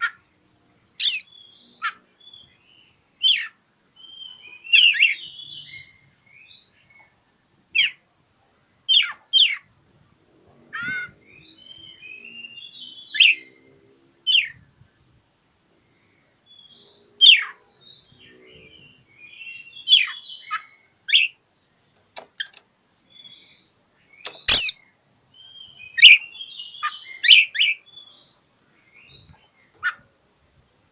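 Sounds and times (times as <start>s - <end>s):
bird's sharp loud calls: 1.0s - 2.5s, 24.1s - 24.8s, 25.5s - 28.2s
soft bird warbling and twittering: 1.0s - 7.2s, 16.4s - 30.2s.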